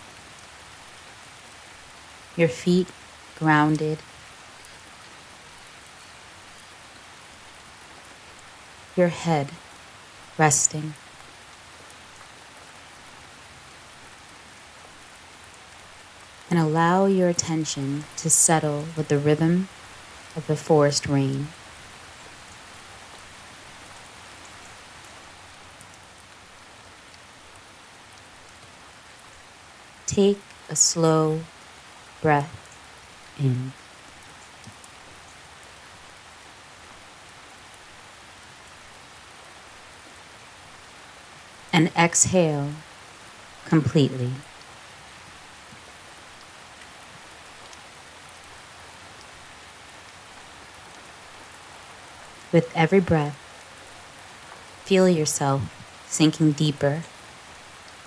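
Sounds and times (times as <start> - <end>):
faint water drips: 0.0 - 41.8, 44.4 - 52.6, 53.3 - 54.9
steady rain: 0.0 - 58.0.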